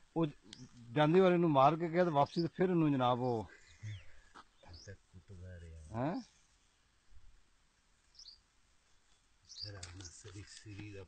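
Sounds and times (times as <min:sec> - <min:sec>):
bird chirps: 0:01.9 - 0:05.0, 0:08.1 - 0:08.4, 0:09.4 - 0:10.8.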